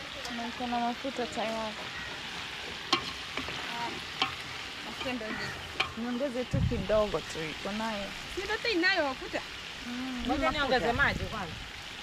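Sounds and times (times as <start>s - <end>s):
food sizzling in a pot: 0.0s - 12.0s
stirring clicks: 2.6s - 6.0s.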